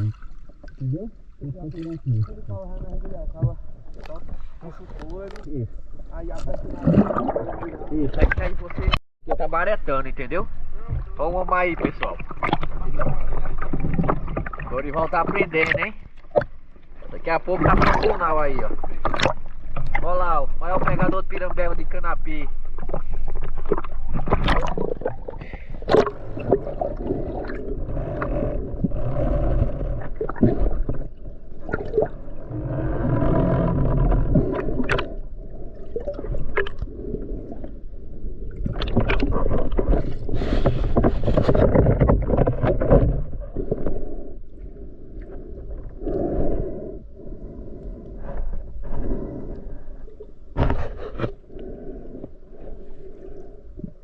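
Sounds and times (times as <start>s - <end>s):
muffled water sloshing and gurgling: 0.0s - 54.0s
knocks and scrapes on camera: 39.0s - 43.8s, 50.5s - 51.4s.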